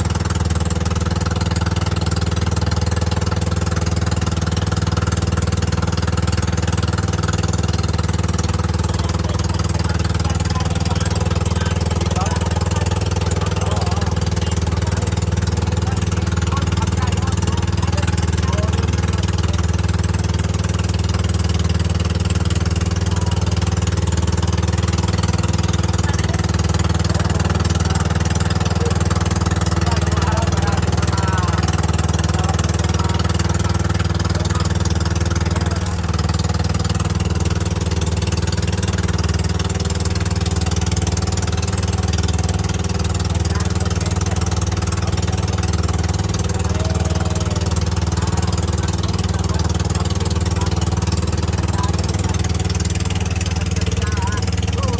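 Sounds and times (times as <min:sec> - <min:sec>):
boat engine droning: 0:00.0 - 0:54.9.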